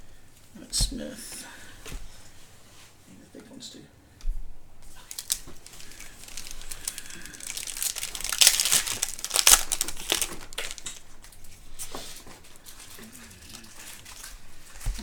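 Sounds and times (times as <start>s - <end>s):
plastic wrapper tearing and crumpling: 4.9s - 11.1s.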